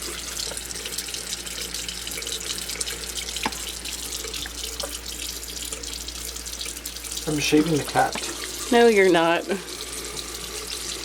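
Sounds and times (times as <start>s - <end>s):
water running from a faucet: 0.0s - 11.0s.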